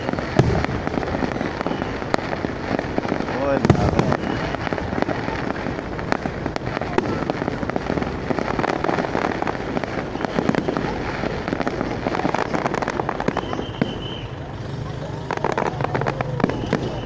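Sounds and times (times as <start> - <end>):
fireworks bangs and pops: 0.0 - 17.0.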